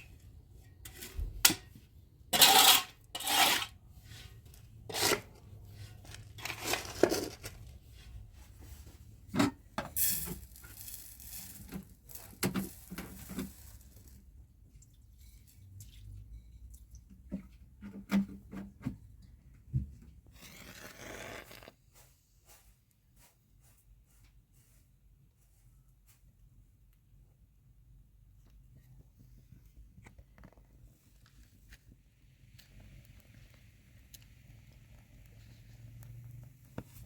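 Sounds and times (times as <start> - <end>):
objects scraping rustling and clinking: 0.0 - 14.3.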